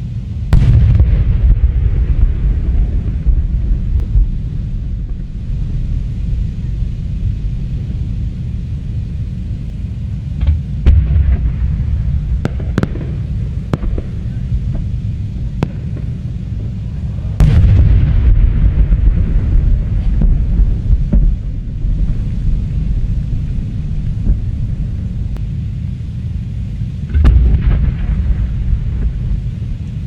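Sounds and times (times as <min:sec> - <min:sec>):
fireworks bursts rumbling: 0:00.0 - 0:30.0
sharp firework cracks: 0:10.4 - 0:16.8.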